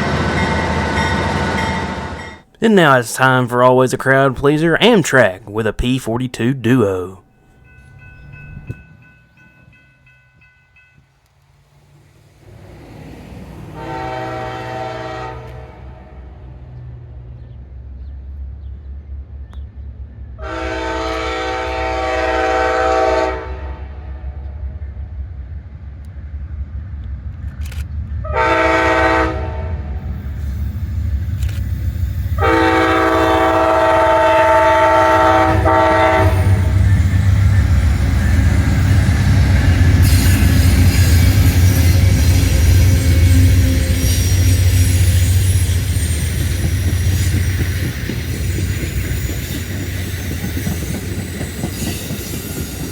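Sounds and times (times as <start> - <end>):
diesel train rumble: 0.0 - 52.9
locomotive horn: 13.7 - 16.5, 20.4 - 24.6, 28.2 - 30.1, 32.4 - 45.9.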